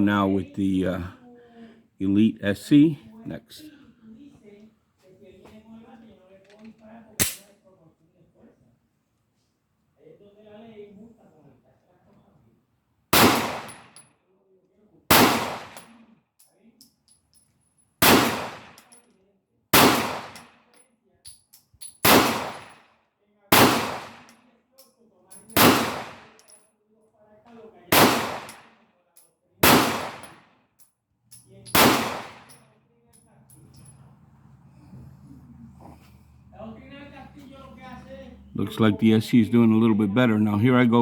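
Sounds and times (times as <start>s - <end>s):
pistol shots with echo: 7.2s - 7.5s, 13.1s - 14.0s, 15.1s - 16.0s, 18.0s - 18.9s, 19.8s - 20.5s, 22.0s - 22.8s, 23.5s - 24.4s, 25.6s - 26.4s, 27.9s - 28.8s, 29.6s - 30.4s, 31.7s - 32.6s.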